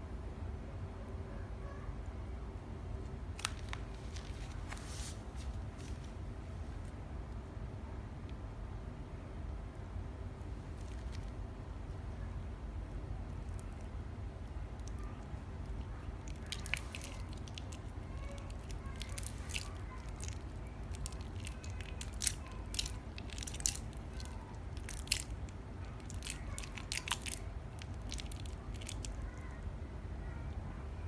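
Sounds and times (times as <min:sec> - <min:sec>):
slime crackling and clicking: 0:14.8 - 0:29.6.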